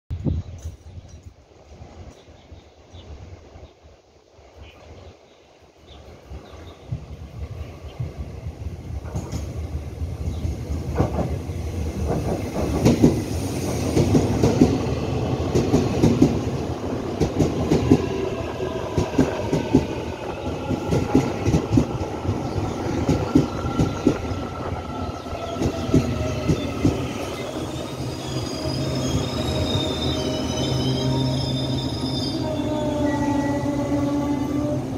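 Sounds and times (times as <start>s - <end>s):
train wheels clattering over rails: 10.3s - 24.4s, 25.1s - 27.2s
train brakes squealing: 25.4s - 34.8s.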